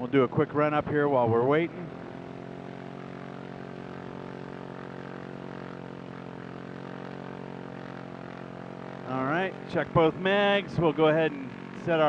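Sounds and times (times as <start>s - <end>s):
light aircraft engine and propeller droning: 0.0s - 12.0s.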